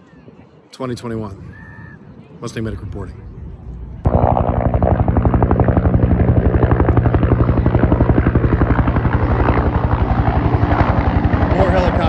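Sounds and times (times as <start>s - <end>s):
helicopter rotor beating: 2.6s - 12.0s
helicopter engine hum: 2.8s - 12.0s.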